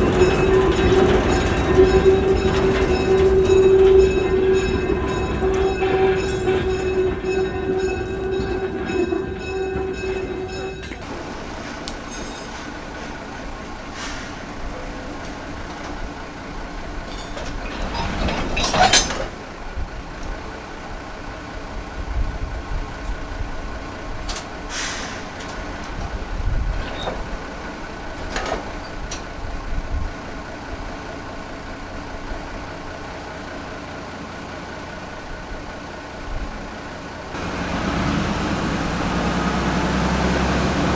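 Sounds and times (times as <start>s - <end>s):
train rumble: 0.0s - 40.9s
short hisses: 13.8s - 14.5s, 24.7s - 25.3s.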